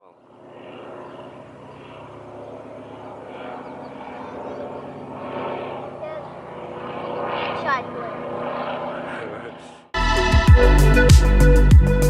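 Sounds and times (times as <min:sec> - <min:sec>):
propeller airplane engine droning: 0:00.0 - 0:10.0.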